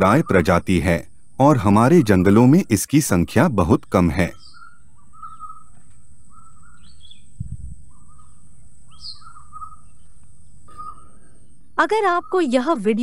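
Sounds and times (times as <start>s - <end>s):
background hiss: 0.0s - 4.6s
birds calling: 0.0s - 13.0s.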